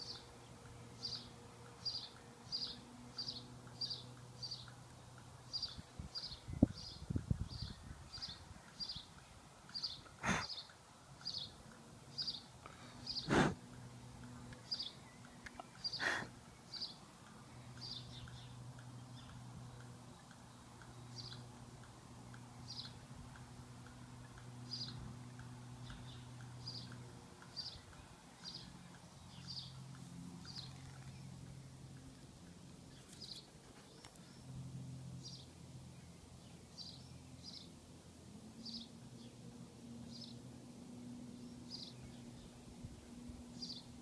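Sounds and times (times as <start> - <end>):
small bird chirping: 0.0 - 34.5, 43.5 - 44.0.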